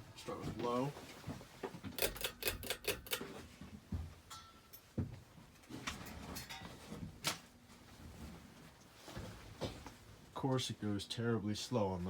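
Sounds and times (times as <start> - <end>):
sharp clicks and knocks: 1.9 - 3.4.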